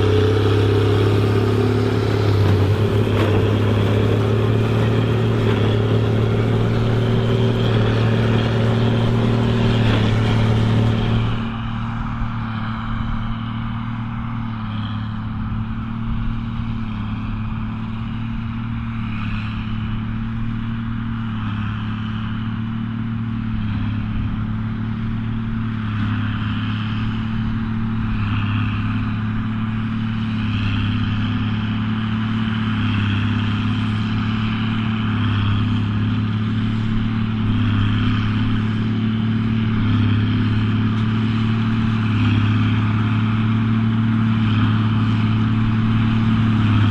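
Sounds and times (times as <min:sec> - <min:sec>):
baler machinery whirring: 0:00.0 - 0:12.4
tractor diesel engine running: 0:00.0 - 0:46.9.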